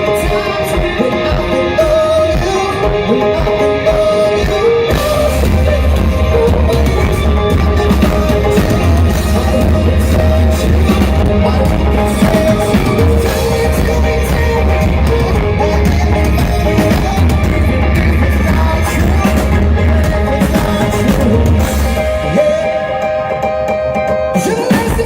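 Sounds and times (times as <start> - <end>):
live rock band playing: 0.0 - 25.0.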